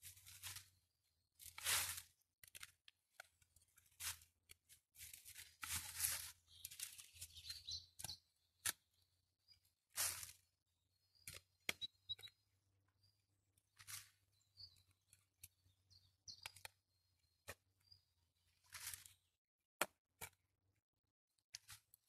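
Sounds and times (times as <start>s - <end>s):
faint birds chirping: 5.4s - 19.4s.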